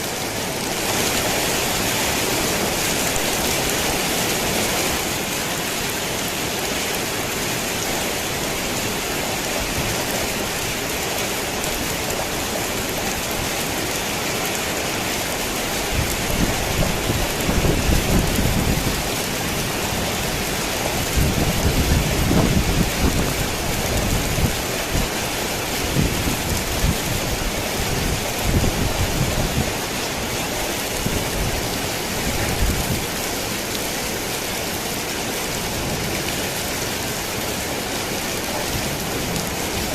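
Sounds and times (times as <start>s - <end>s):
heavy rain on a tin roof: 0.0s - 39.9s
thunder rumbling: 15.9s - 25.2s.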